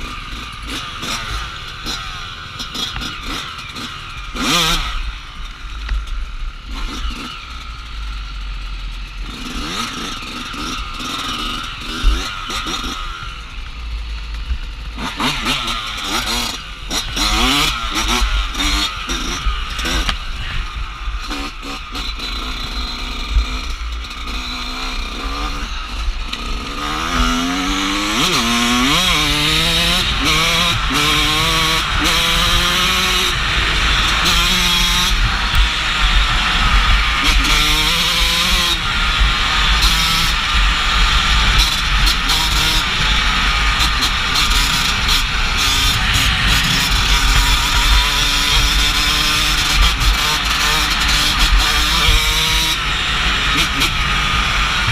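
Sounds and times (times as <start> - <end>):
dirt bike engine revving: 0.0 - 54.9
wind on microphone: 28.8 - 54.9.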